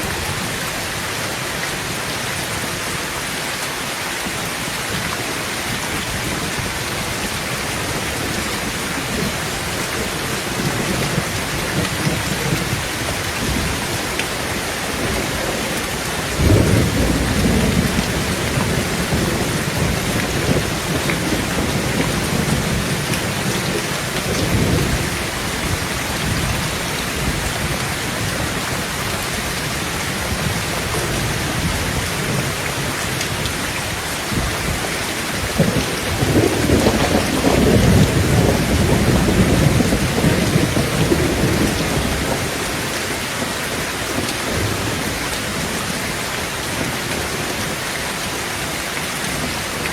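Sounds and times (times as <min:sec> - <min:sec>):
heavy rain on a tin roof: 0:00.0 - 0:49.9
thunder rumbling: 0:05.6 - 0:47.7.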